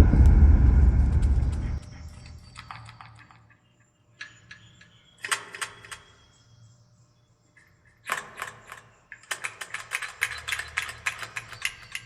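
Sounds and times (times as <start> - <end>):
low rumble: 0.0 - 2.1.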